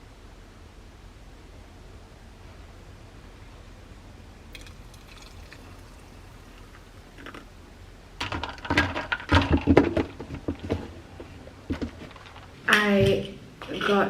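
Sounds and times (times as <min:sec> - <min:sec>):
faint steady hiss: 0:00.0 - 0:14.0
handling clicks knocks and rustles: 0:08.2 - 0:14.0.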